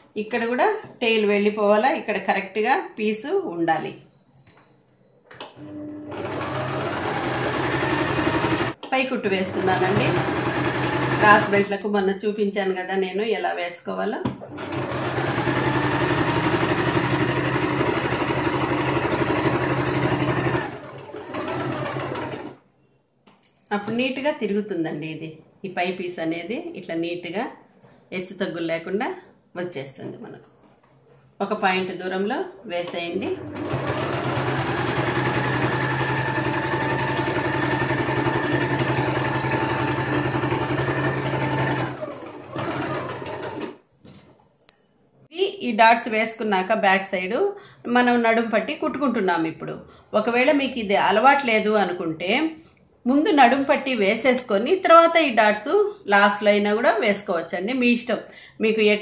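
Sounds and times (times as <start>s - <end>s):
sewing machine running: 5.6s - 8.8s, 9.4s - 11.6s, 14.4s - 22.6s, 33.3s - 43.8s.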